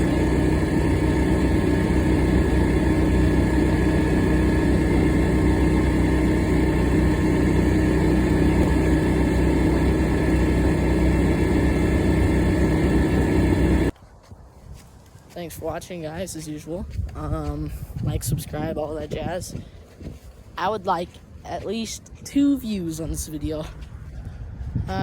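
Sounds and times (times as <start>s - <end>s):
golf cart engine running: 0.0s - 14.0s.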